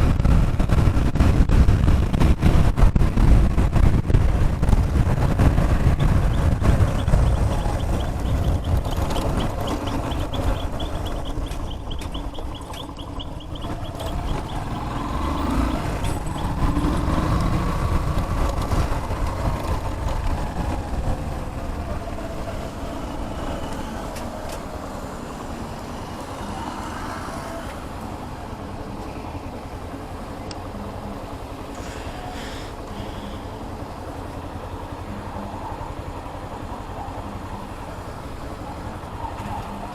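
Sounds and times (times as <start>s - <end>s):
motorcycle engine rumbling: 0.0s - 39.9s.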